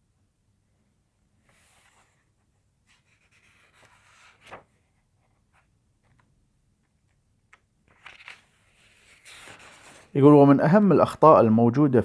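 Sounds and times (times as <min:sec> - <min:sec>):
paper rustling: 0:01.4 - 0:10.2.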